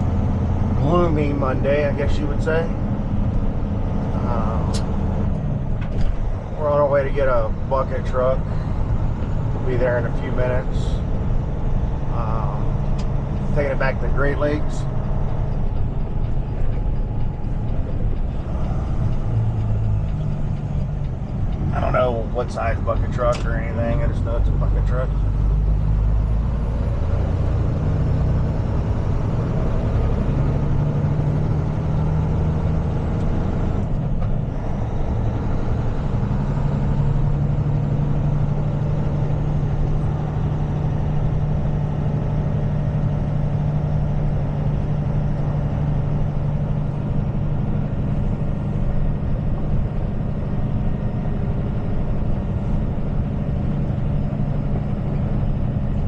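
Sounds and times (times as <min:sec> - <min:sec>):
road noise: 0:00.0 - 0:56.0
truck engine drone: 0:00.0 - 0:56.0.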